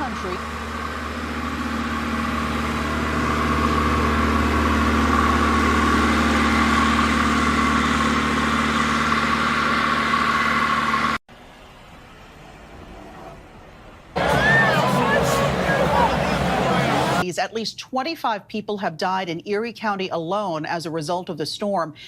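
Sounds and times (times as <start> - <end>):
engine humming: 0.0 - 17.2.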